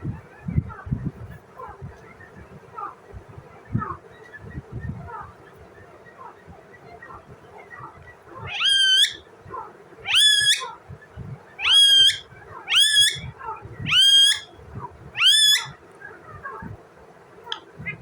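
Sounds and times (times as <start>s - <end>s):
parrot calling loudly: 8.5s - 9.2s, 10.0s - 10.7s, 11.6s - 13.3s, 13.9s - 14.5s, 15.2s - 15.8s.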